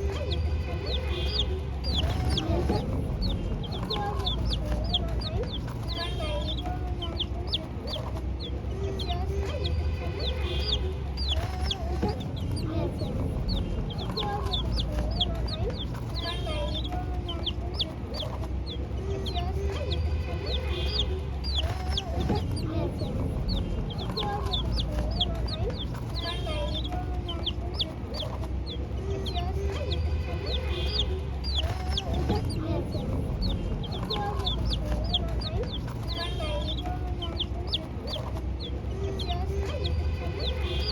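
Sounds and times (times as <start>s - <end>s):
chickens clucking: 0.0s - 40.9s
chicks peeping: 0.0s - 40.9s.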